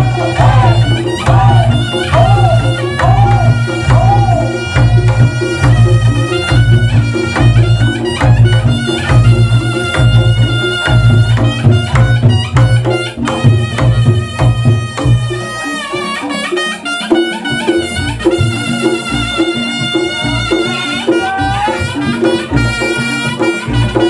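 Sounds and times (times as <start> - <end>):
low pulsing beat: 0.0 - 15.4
gamelan music: 0.0 - 24.0
hand drum drumming: 0.0 - 24.0
wavering reed melody: 0.0 - 24.0.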